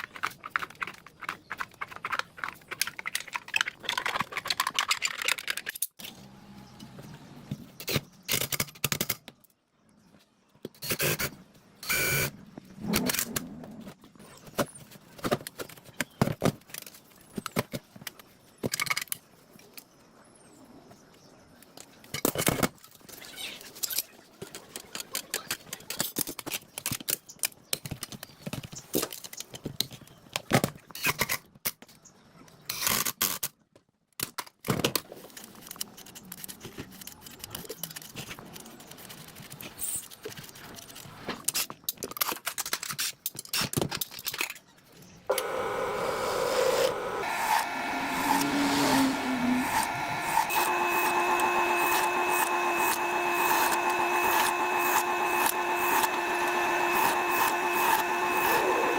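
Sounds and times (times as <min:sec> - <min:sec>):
tools and metal parts clicking: 0:00.0 - 0:06.2.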